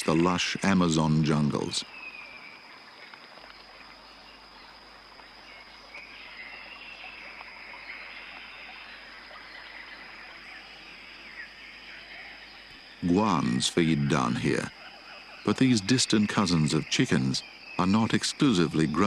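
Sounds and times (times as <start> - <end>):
faint bird calls: 0.0 - 19.0
insect drone: 0.0 - 19.0.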